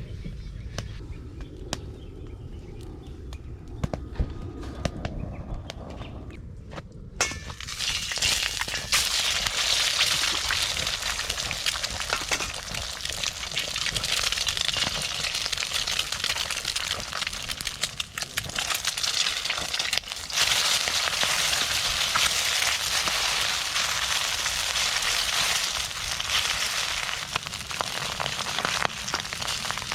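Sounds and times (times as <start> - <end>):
food sizzling in hot oil: 7.6 - 29.9.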